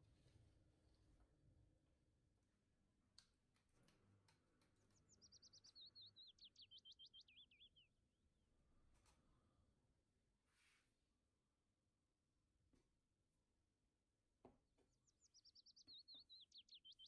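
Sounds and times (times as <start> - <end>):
songbird singing: 3.9 - 8.2, 14.6 - 17.0.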